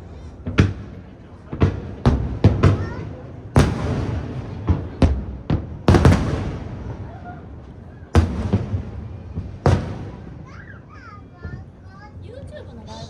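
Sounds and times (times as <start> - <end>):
fireworks booms echoing: 0.4 - 11.8.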